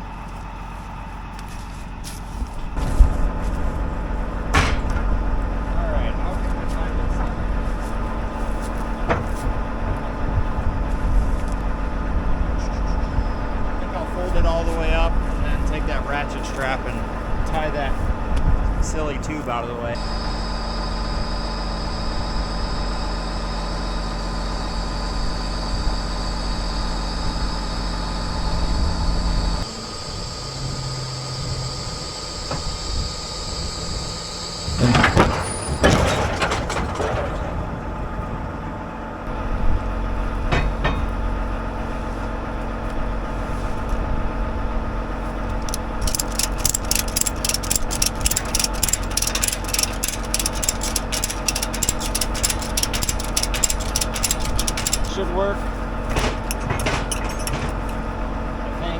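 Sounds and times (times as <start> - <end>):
engine running: 0.0 - 58.9
loud metallic clanks: 4.4 - 5.2, 34.6 - 38.4, 40.4 - 41.3, 45.6 - 55.2, 56.0 - 58.1
ratchet strap clicking: 45.5 - 55.2.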